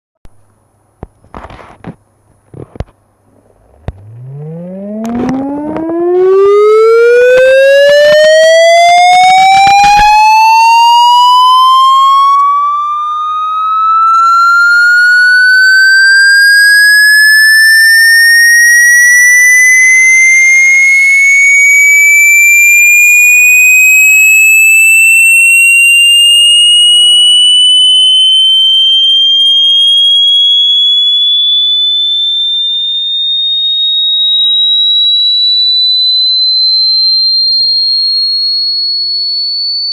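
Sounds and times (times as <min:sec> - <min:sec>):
crackling clicks: 0:01.0 - 0:06.4, 0:09.1 - 0:10.4, 0:12.2 - 0:29.6
loud rising tone: 0:03.5 - 0:30.6.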